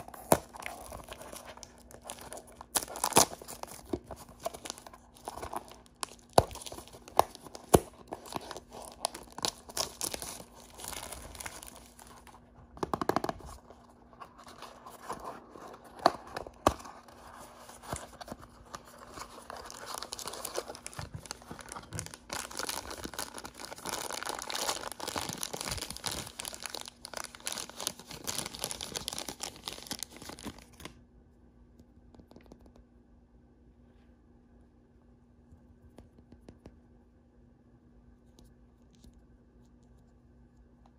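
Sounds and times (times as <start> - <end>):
packaging wrappers crinkling: 0.0 - 30.9.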